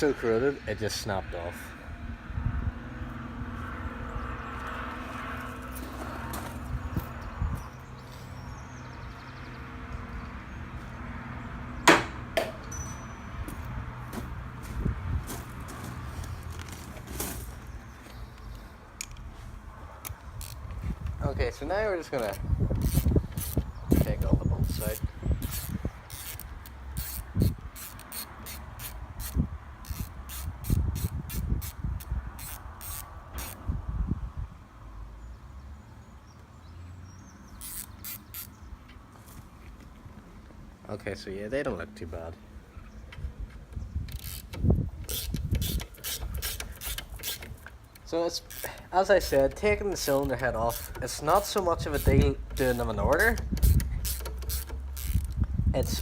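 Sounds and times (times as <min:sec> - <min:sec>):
sharp tool knocks: 0:11.8 - 0:12.6
ratchet wrench clicking: 0:20.0 - 0:20.6, 0:22.2 - 0:33.6, 0:37.6 - 0:38.6, 0:44.1 - 0:56.0.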